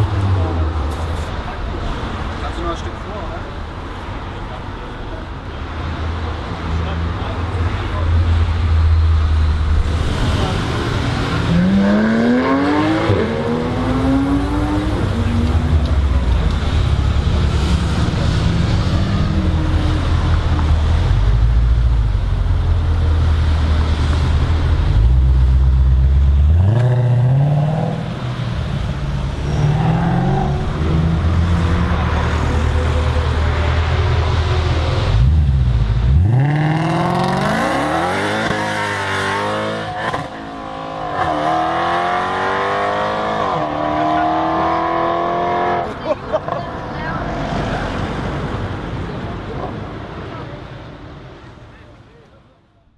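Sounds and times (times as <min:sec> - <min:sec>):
car engine revving and accelerating: 0:09.6 - 0:21.4, 0:23.2 - 0:28.3, 0:29.2 - 0:49.0.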